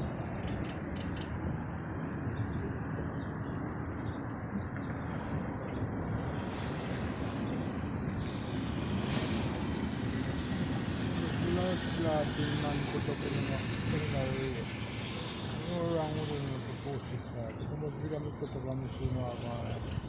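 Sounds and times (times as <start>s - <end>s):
birds chirping: 9.3s - 20.0s.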